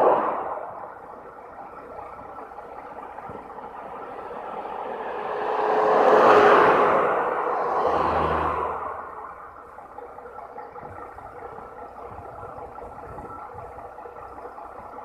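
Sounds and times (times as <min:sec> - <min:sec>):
road vehicle passing by: 0:00.0 - 0:10.1.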